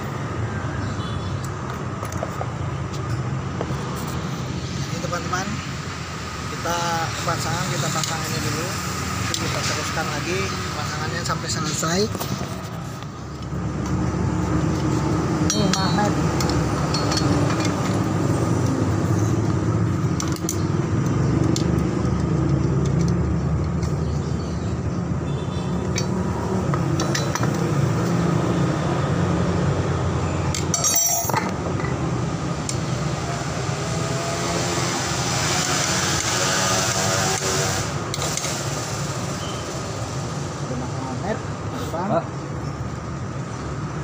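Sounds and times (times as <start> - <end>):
metal clinks and knocks: 14.7 - 18.2, 25.9 - 27.7, 30.5 - 32.0.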